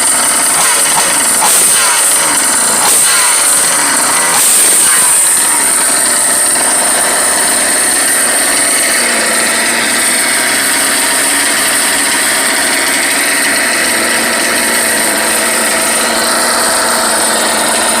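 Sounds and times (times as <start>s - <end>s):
small engines whining: 0.0s - 18.0s.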